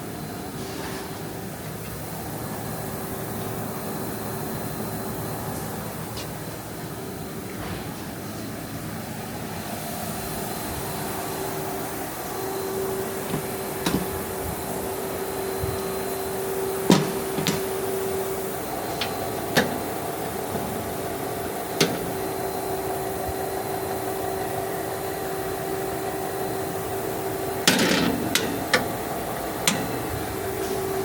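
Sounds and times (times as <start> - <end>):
machine hum: 1.3 - 31.0
sharp clicks and knocks: 13.2 - 14.6, 16.8 - 17.9, 18.7 - 22.4, 27.7 - 29.0, 29.7 - 30.1.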